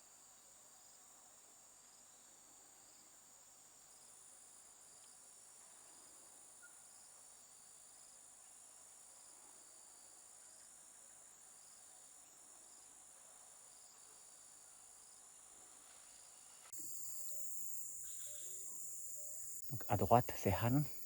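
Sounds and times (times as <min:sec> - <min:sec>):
insect drone: 0:01.8 - 0:21.0
pulsing insect call: 0:16.8 - 0:21.0.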